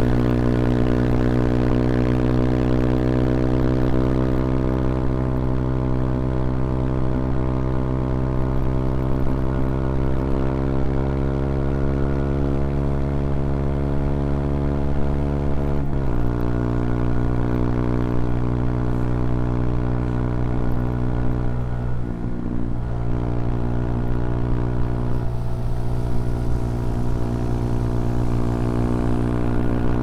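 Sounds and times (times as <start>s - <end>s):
motorcycle engine pulling: 25.1s - 30.0s.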